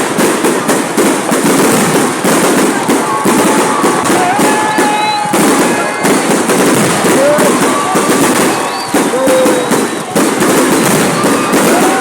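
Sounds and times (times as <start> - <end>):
crowd voices: 0.0 - 12.0
fireworks bangs and crackle: 0.0 - 12.0.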